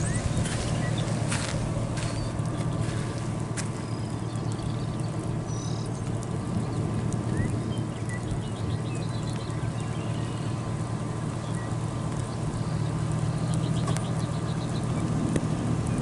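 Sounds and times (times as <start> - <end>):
bird chirps: 0.0 - 3.0, 3.8 - 6.0
vehicle engine idling: 0.0 - 16.0.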